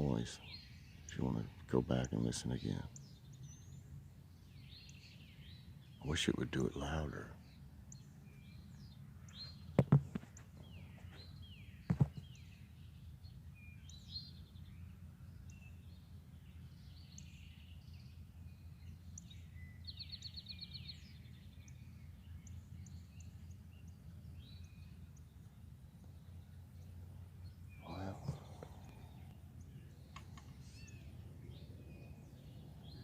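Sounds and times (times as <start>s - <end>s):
birds chirping and singing: 0.0s - 33.0s
steady low hum: 0.0s - 33.0s
bird trill: 10.6s - 33.0s.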